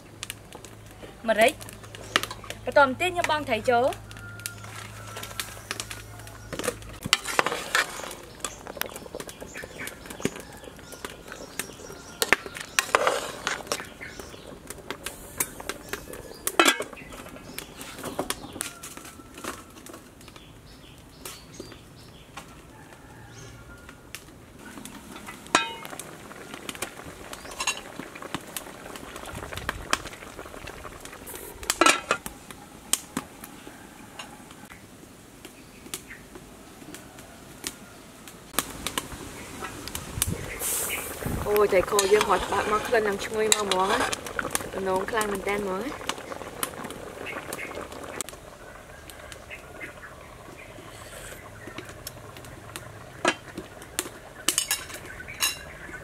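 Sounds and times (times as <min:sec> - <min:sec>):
metal pot and lid clinking: 0:16.6 - 0:17.0, 0:25.2 - 0:25.9, 0:54.5 - 0:55.6.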